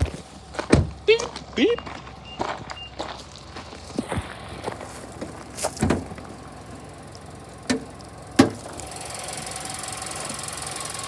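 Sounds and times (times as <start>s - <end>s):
car hood clunks and knocks: 0.0s - 1.0s, 5.0s - 6.9s, 7.6s - 8.8s
car engine humming: 0.0s - 11.0s.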